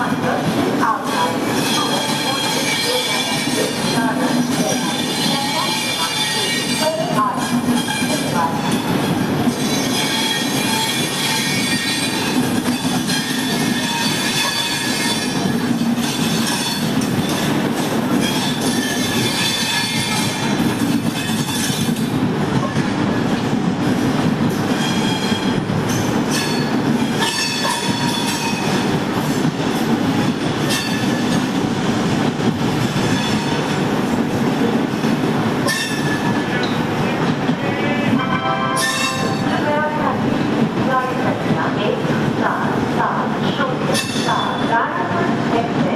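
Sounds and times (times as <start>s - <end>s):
train rumbling on track: 0.0s - 45.9s
metallic wheel squeal: 24.8s - 25.5s, 26.3s - 28.7s, 35.7s - 36.3s.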